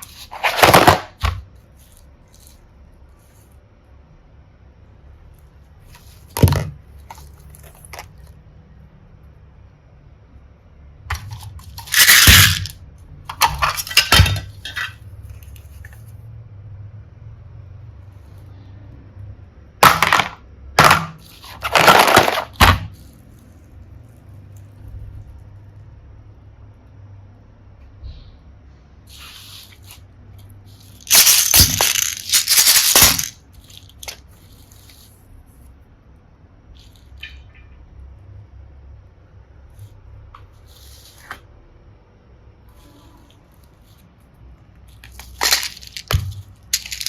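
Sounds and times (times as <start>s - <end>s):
small hard pieces clattering: 0.0s - 2.6s, 11.1s - 15.0s, 19.8s - 23.1s, 30.7s - 35.0s, 44.9s - 47.0s.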